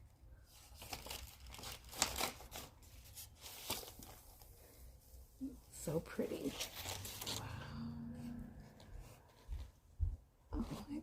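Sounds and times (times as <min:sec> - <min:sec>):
record sleeves rustling and crinkling: 0:00.3 - 0:07.5.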